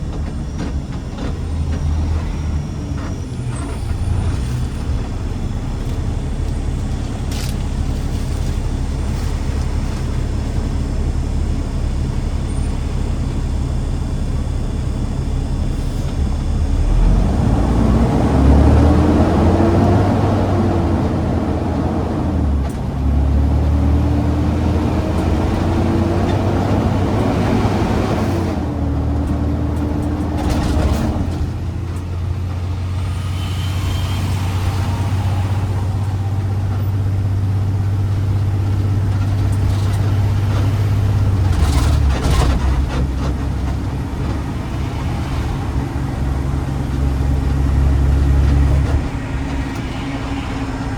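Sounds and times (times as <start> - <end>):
garbage truck engine accelerating: 0.0 - 50.9.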